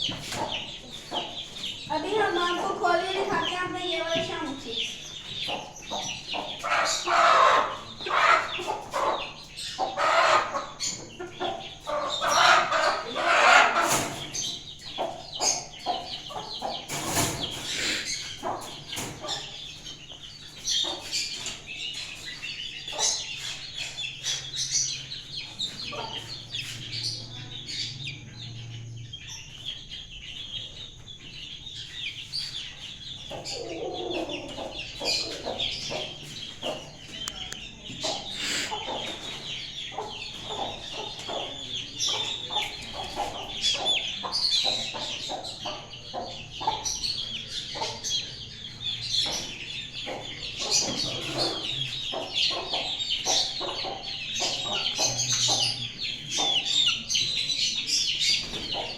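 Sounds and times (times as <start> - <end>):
chickens clucking and calling: 0.0 - 58.9.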